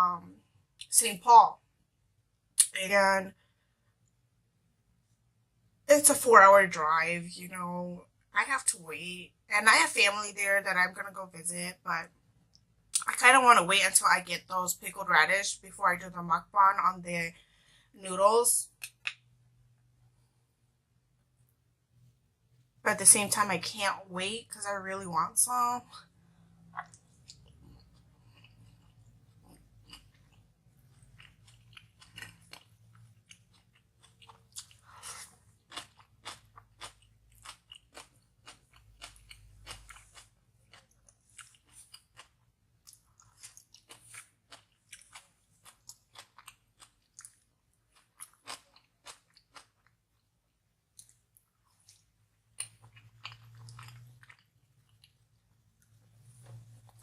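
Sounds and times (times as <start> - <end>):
close chewing and biting: 26.7 - 49.9, 51.0 - 55.2.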